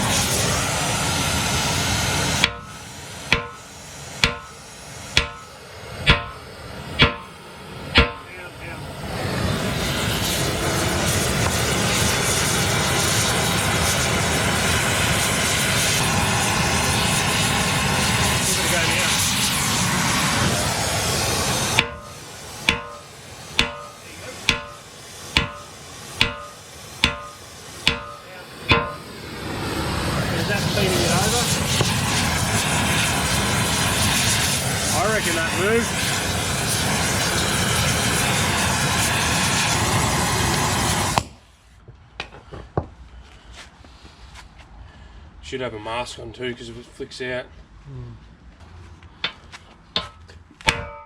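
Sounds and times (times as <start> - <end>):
steady rushing noise: 0.0 - 13.5, 15.4 - 40.9
steady hiss: 0.0 - 41.4
hammer ringing on steel: 2.4 - 7.4, 8.0 - 8.4, 21.8 - 29.1, 50.0 - 51.0.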